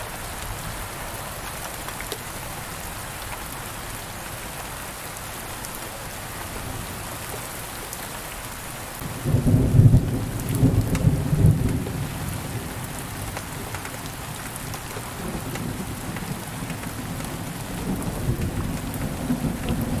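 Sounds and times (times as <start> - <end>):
steady rain: 0.0 - 20.0
raindrop ticks: 9.9 - 12.0, 12.7 - 20.0
low thunder rumble: 15.2 - 20.0.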